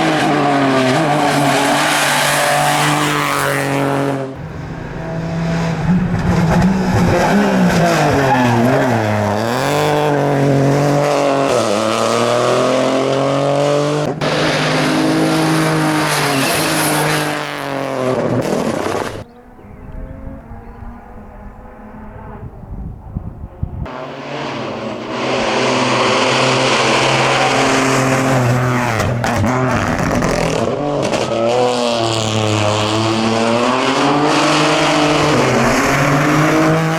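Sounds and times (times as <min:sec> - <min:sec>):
rally car engine revving: 0:00.0 - 0:36.9.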